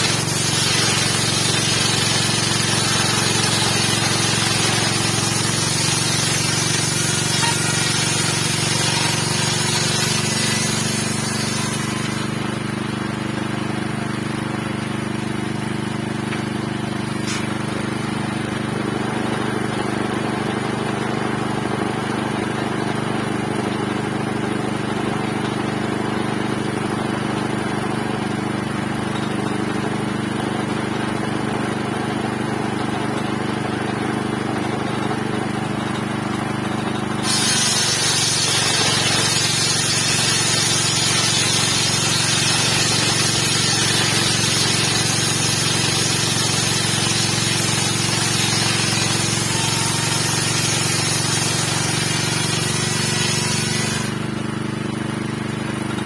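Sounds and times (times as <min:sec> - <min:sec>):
circular saw cutting wood: 0:00.0 - 0:12.9, 0:16.3 - 0:18.1, 0:37.0 - 0:54.3
engine running: 0:00.0 - 0:56.0.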